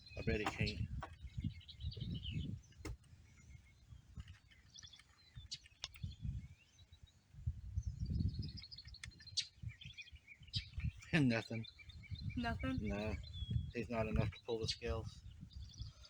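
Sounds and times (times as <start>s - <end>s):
small birds chirping: 0.0s - 16.0s
sharp clicks: 4.8s - 6.1s.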